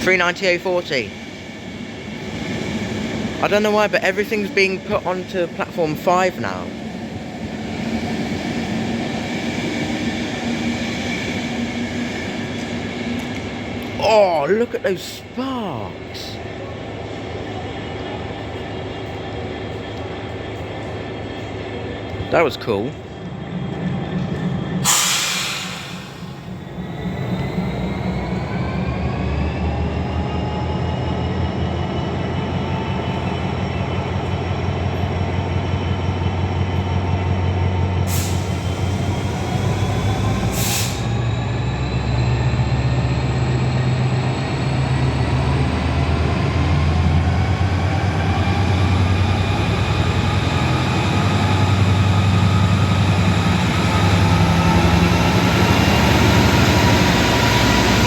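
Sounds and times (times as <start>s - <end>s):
diesel locomotive engine working hard: 0.0s - 58.0s
air hissing: 24.8s - 26.6s.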